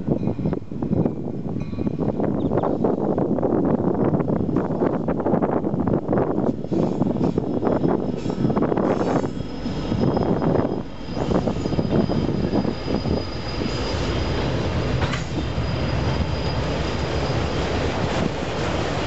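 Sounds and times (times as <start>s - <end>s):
freight train rumbling on rails: 0.0s - 19.0s
high wheel squeal: 6.6s - 18.2s.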